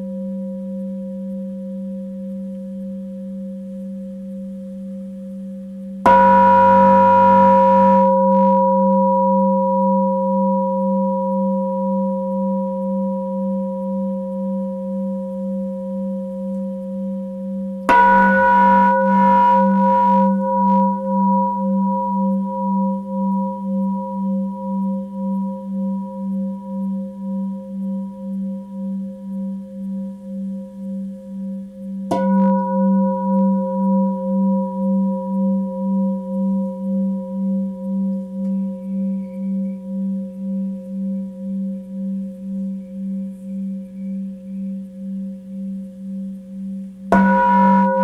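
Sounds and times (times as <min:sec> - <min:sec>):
singing bowl ringing: 0:06.1 - 0:16.3, 0:17.9 - 0:28.0, 0:32.1 - 0:43.3, 0:47.1 - 0:48.0.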